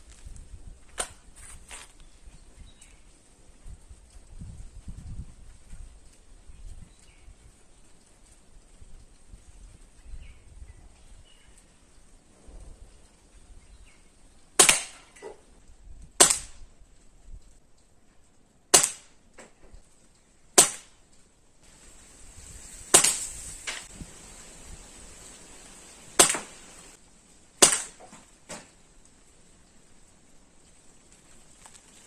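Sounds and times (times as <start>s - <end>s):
air rifle shots: 14.6s - 15.1s, 16.2s - 16.6s, 18.7s - 19.1s, 20.6s - 20.9s, 22.9s - 23.8s, 26.2s - 26.6s, 27.6s - 28.0s.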